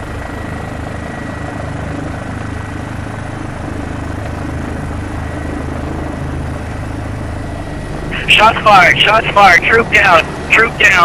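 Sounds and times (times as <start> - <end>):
helicopter engine and rotor: 0.0 - 11.0
thin steady whine: 0.0 - 11.0.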